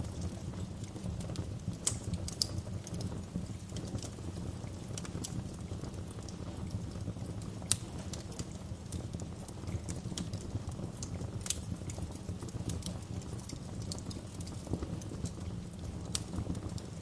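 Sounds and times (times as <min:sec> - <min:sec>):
low rumble of flames: 0:00.0 - 0:17.0
wood fire crackles and pops: 0:00.0 - 0:17.0.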